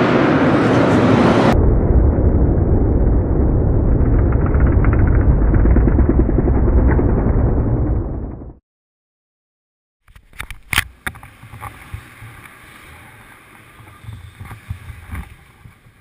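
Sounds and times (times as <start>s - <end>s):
muffled dirt bike engine: 10.6s - 16.0s.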